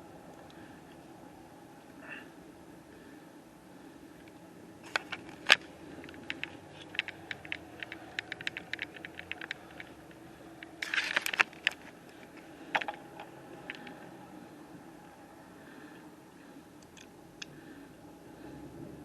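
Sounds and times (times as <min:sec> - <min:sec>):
faint steady background noise: 0:00.0 - 0:19.0
sharp clicks and light clinks: 0:04.8 - 0:14.0.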